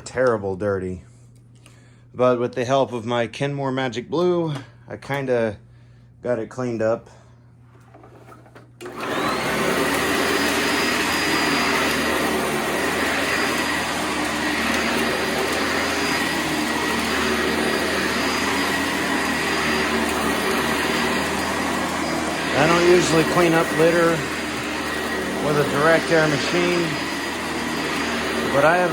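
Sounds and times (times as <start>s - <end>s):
upright vacuum cleaner running: 7.7s - 28.9s.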